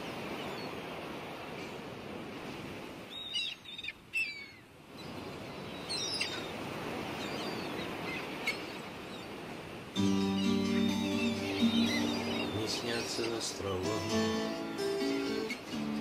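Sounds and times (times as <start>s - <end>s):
birds chirping: 3.1s - 9.4s, 10.0s - 16.0s.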